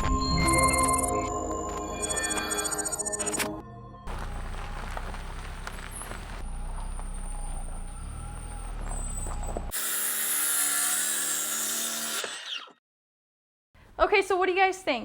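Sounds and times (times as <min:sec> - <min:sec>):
low rumble: 0:03.9 - 0:09.7
car wheels screeching: 0:04.1 - 0:09.8.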